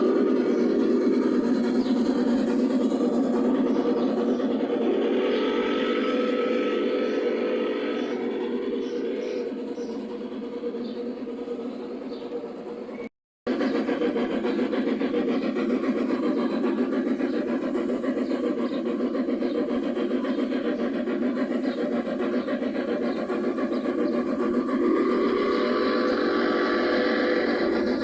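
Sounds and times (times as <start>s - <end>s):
model train running: 0.0s - 28.0s.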